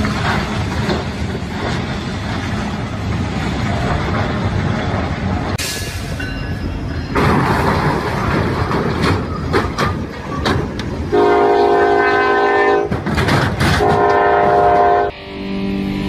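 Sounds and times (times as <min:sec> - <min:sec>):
train wheels rumbling on rails: 0:00.0 - 0:15.1
passing train rushing: 0:00.0 - 0:16.0.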